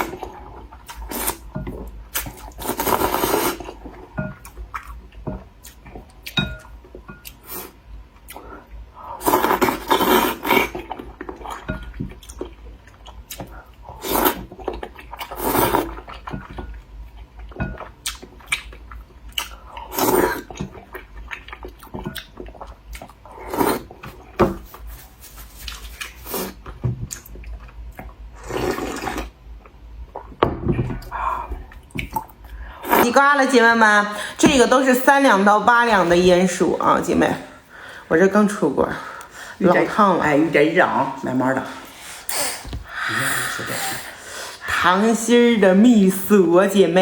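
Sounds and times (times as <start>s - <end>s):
person slurping soup: 2.4s - 3.9s, 9.1s - 11.0s, 13.9s - 16.1s, 28.4s - 29.4s, 41.6s - 44.7s
person chewing: 41.8s - 44.6s.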